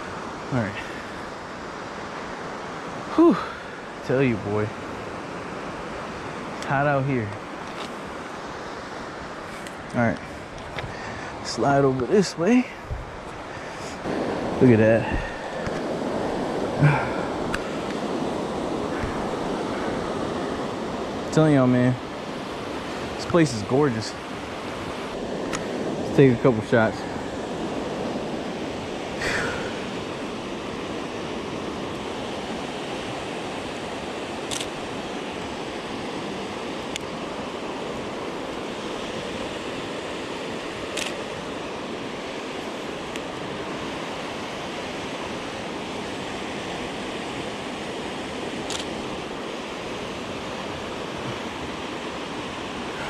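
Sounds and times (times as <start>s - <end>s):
water rushing over rocks: 0.0s - 4.9s, 10.8s - 53.0s.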